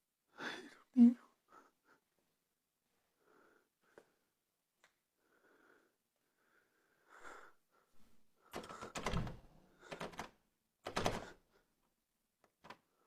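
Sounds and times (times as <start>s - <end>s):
door thudding and rattling: 8.6s - 10.2s.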